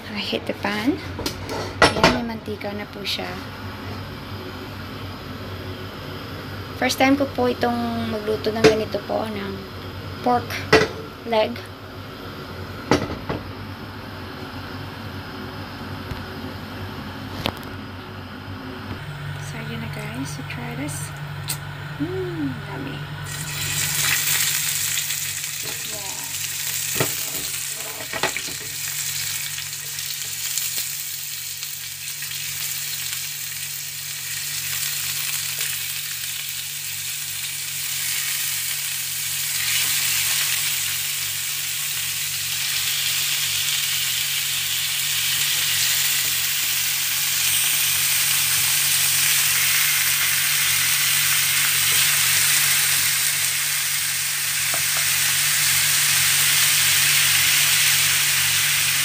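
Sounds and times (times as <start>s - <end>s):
steady low hum: 0.0s - 31.2s
meat sizzling in oil: 23.2s - 59.0s.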